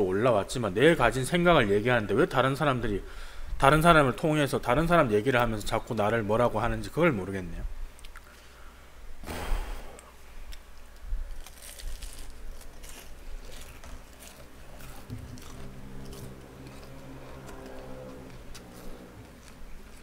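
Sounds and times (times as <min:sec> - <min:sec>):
short hissing burst: 0:09.2 - 0:10.1
crunchy chewing: 0:10.5 - 0:20.0.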